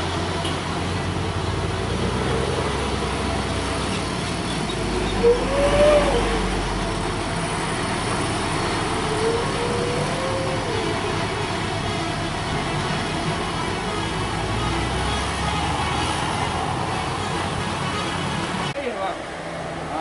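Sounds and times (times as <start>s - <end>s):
truck diesel engine droning: 0.0s - 20.0s
rising and falling tone: 8.3s - 11.3s.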